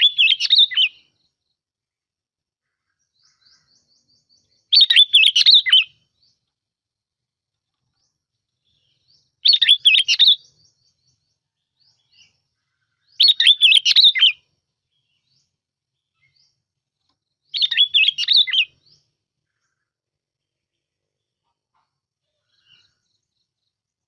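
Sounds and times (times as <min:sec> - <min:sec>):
bulbul singing: 0:00.0 - 0:01.4, 0:03.0 - 0:06.5, 0:07.9 - 0:16.6, 0:17.2 - 0:19.8.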